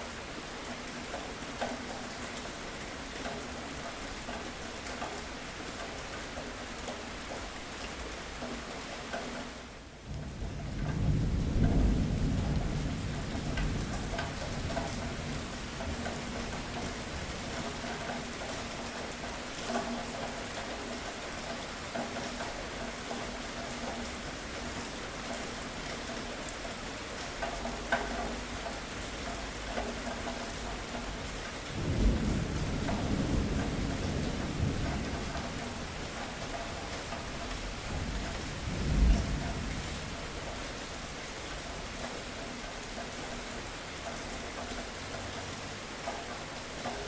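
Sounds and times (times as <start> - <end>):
rain falling: 0.0 - 47.0
thunder rumble: 10.1 - 17.5, 31.7 - 40.6.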